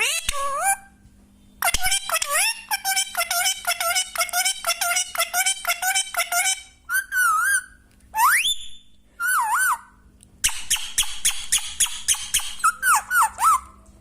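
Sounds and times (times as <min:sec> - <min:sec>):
parrot whistling: 0:06.9 - 0:13.8.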